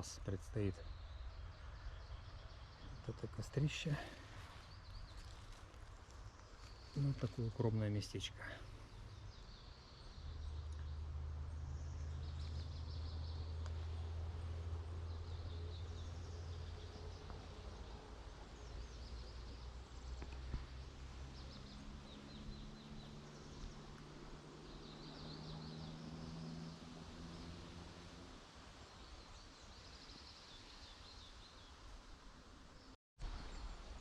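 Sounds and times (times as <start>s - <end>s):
small birds chirping trills: 0.0s - 34.0s.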